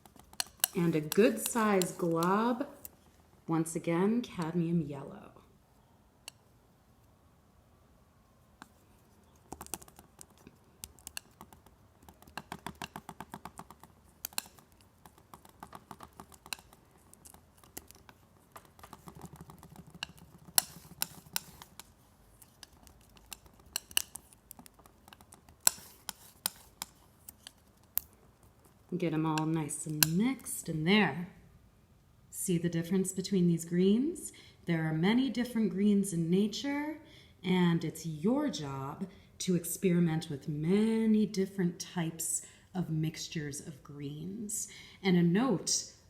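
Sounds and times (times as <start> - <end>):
paint mixing tool tapping and scraping: 0.0 - 3.1, 8.6 - 30.2.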